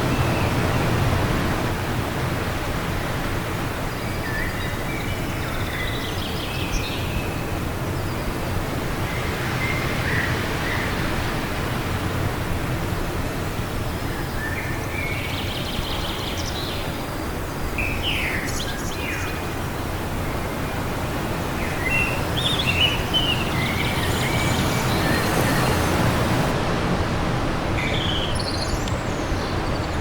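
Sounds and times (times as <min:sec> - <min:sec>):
wind: 0:00.0 - 0:30.0
small birds chirping: 0:13.8 - 0:26.5, 0:27.8 - 0:30.0.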